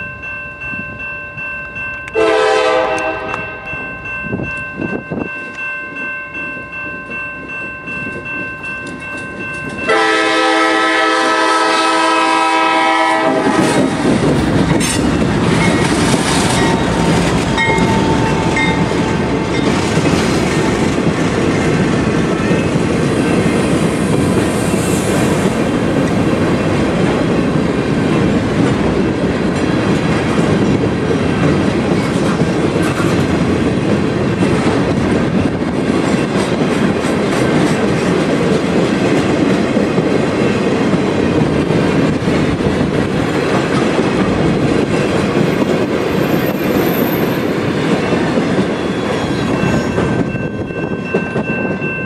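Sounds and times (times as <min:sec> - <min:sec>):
freight train wheels clattering: 0:06.6 - 0:52.0
wheels clacking over rail joints: 0:13.4 - 0:24.4, 0:25.2 - 0:50.4.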